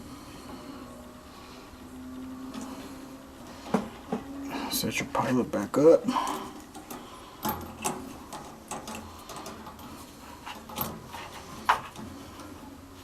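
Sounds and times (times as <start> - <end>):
parts clicking and knocking: 6.2 - 12.6.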